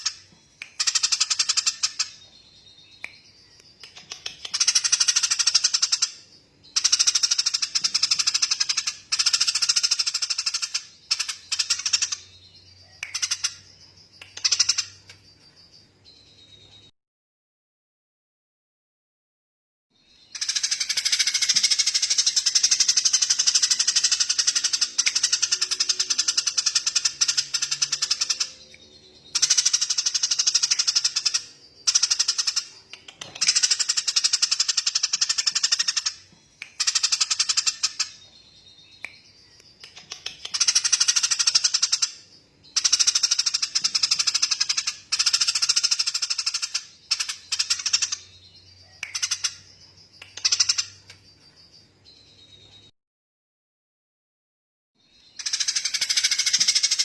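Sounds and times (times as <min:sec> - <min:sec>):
songbird rattling trill: 0:20.3 - 0:28.6, 0:29.2 - 0:52.4, 0:55.3 - 0:57.0.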